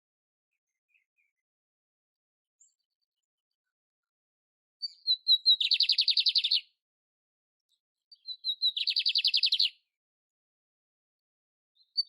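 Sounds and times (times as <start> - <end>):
canary singing trills: 4.8 - 6.8, 8.1 - 9.8.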